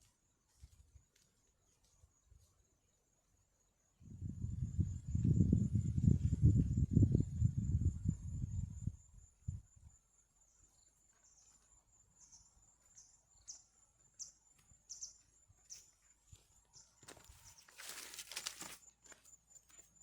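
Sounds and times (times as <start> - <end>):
rustling: 17.3 - 18.9.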